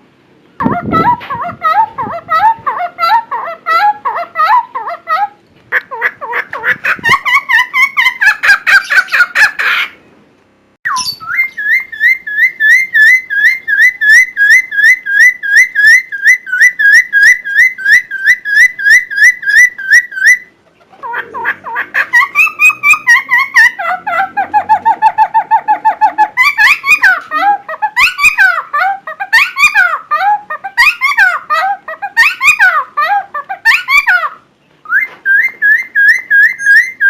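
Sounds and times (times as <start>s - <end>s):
songbird singing whistled notes: 10.9s - 20.5s, 34.8s - 37.0s.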